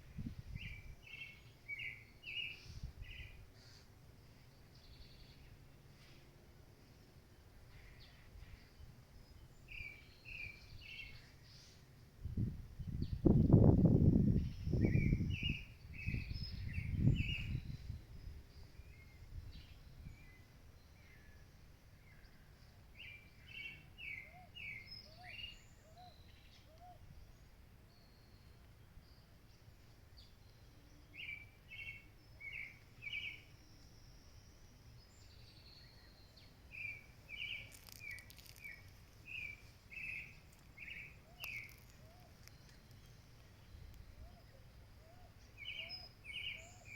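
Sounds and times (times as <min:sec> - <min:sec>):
wind buffeting microphone: 0:00.0 - 0:01.1, 0:12.2 - 0:20.2
faint low outdoor noise: 0:00.0 - 0:46.9
bird chirping: 0:00.2 - 0:03.8, 0:14.2 - 0:46.9.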